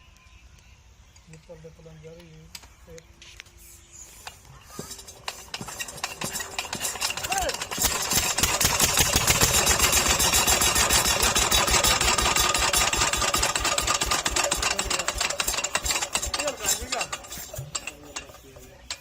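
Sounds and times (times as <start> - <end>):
diesel engine knocking: 4.8 - 19.0.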